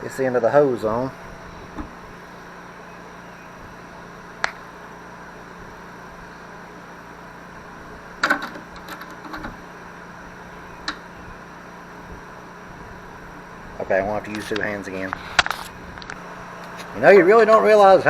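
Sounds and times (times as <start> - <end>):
steady hum: 0.0 - 18.0
tools clicking and clinking: 8.2 - 9.6.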